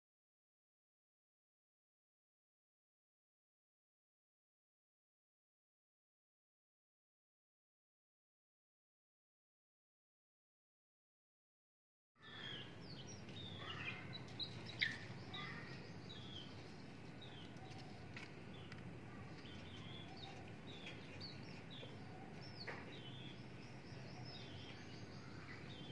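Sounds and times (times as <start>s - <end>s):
small birds chirping: 12.2s - 25.9s
steady low background noise: 12.2s - 25.9s.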